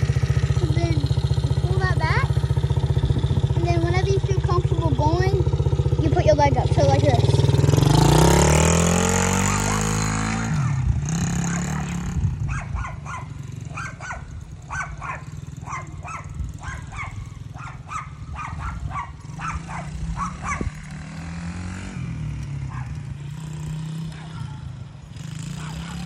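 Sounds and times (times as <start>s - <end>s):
dirt bike engine running: 0.0s - 26.0s
dog barking: 9.3s - 10.8s, 11.4s - 20.8s, 22.7s - 23.0s, 24.1s - 24.6s, 25.5s - 26.0s.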